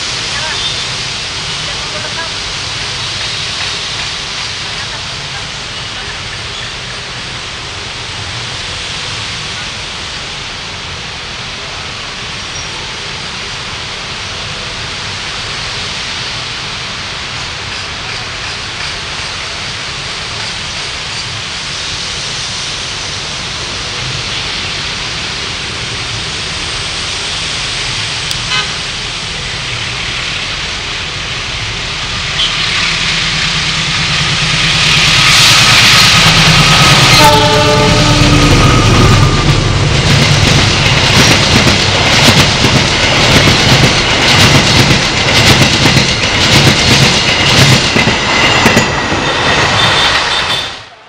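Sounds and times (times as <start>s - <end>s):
train rumbling: 0.0s - 51.0s
train horn: 28.4s - 29.0s, 32.3s - 33.0s, 36.5s - 39.8s, 49.7s - 50.9s.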